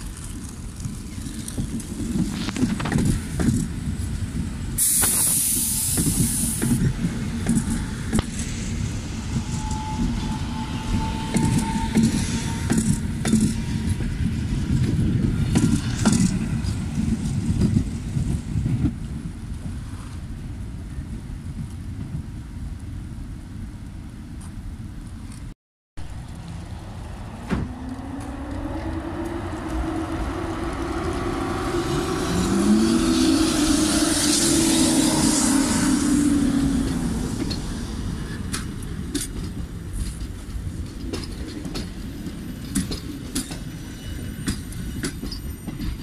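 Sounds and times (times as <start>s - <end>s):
train rumbling past: 0.0s - 22.6s, 26.0s - 46.0s
loud hiss: 4.8s - 6.9s
wheels clacking over rail joints: 9.4s - 19.0s, 36.3s - 46.0s.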